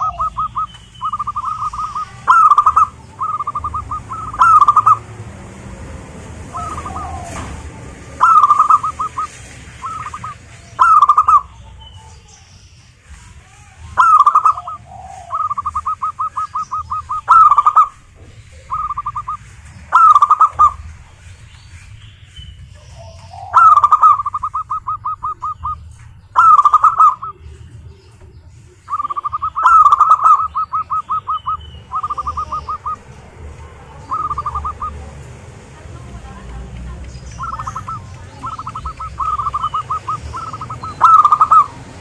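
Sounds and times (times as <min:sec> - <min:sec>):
doves cooing: 0:00.0 - 0:12.4, 0:13.3 - 0:21.9, 0:22.5 - 0:42.0.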